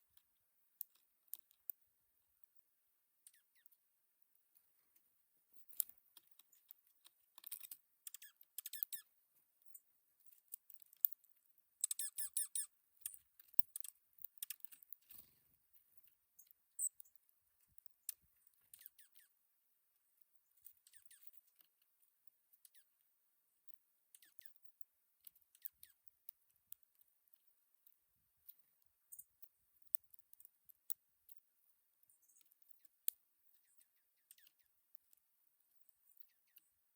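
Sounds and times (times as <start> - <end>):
birds pecking seed clicks: 13.0 - 15.3.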